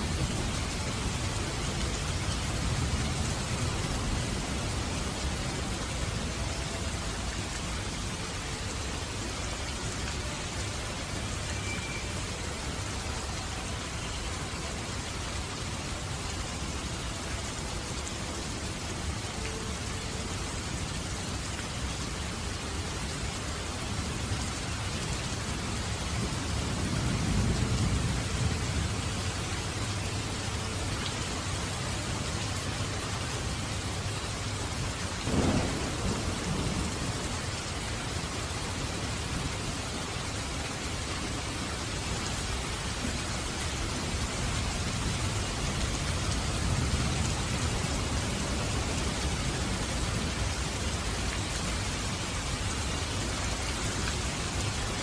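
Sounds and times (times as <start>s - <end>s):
steady rain: 0.0s - 55.0s
low rolling thunder: 35.2s - 37.7s.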